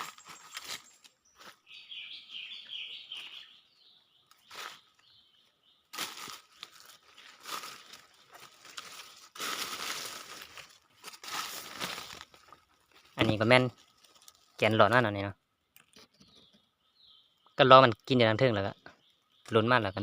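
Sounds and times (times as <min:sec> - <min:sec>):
bird calling: 0:00.0 - 0:07.1
forest litter crunching: 0:00.0 - 0:15.1.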